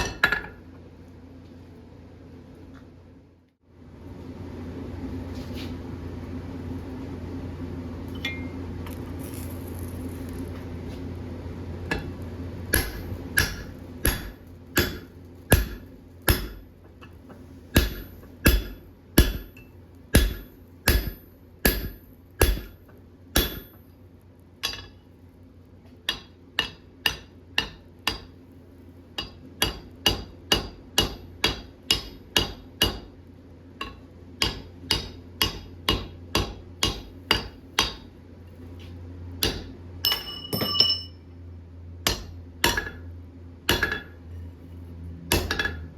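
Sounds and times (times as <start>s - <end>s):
steady low hum: 0.0s - 45.9s
hammer striking steel on anvil: 11.9s - 16.7s, 17.7s - 23.9s, 24.6s - 25.0s, 26.1s - 28.3s, 29.2s - 33.1s, 33.8s - 38.1s, 39.4s - 41.2s, 42.0s - 43.1s, 43.7s - 44.2s, 45.3s - 45.9s.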